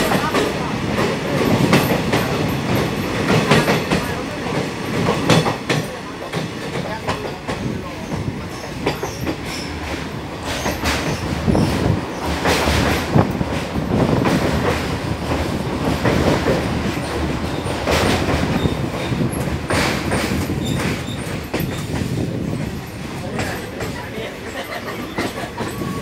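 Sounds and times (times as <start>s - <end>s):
train wheels rumbling on rail: 0.0s - 26.0s
wheels clacking over rail joints: 0.0s - 26.0s.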